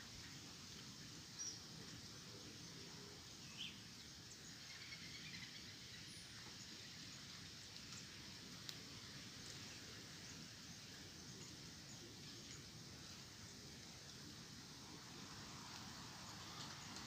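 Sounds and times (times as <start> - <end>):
steady low hiss: 0.0 - 17.0
faint bird chirps: 2.6 - 7.1.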